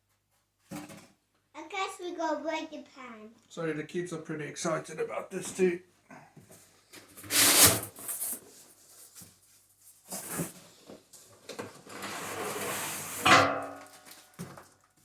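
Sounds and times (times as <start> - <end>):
loud scrape or knock: 7.2 - 8.2, 11.9 - 14.2.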